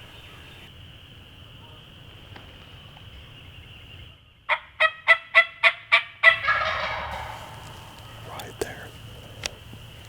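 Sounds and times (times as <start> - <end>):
turkey gobbling: 4.5 - 8.9.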